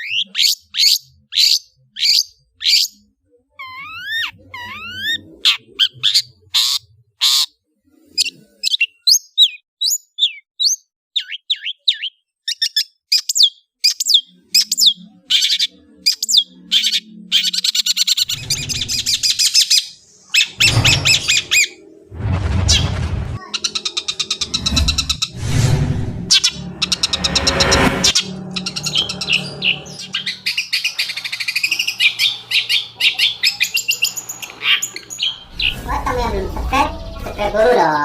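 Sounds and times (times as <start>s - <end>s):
bird whistling song: 8.6s - 21.8s, 28.7s - 35.9s
bird harsh rasping chatter: 14.6s - 21.9s, 22.8s - 25.6s, 28.1s - 37.6s.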